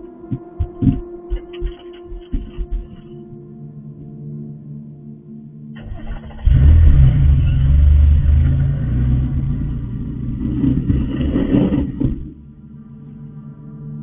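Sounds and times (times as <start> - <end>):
car engine revving: 5.8 - 12.6.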